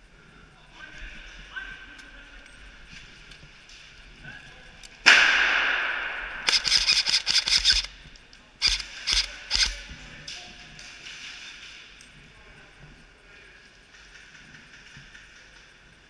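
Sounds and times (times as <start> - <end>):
airsoft gun shots: 5.0 - 7.9.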